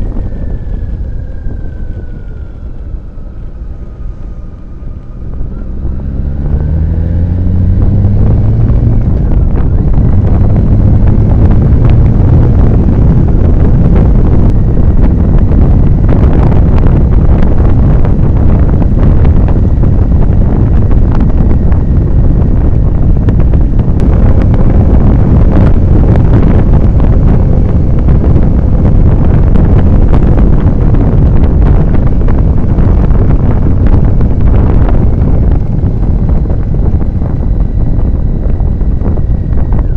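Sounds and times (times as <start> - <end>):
motorcycle engine pulling away: 0.0 - 16.0
wind noise on microphone: 0.0 - 39.9.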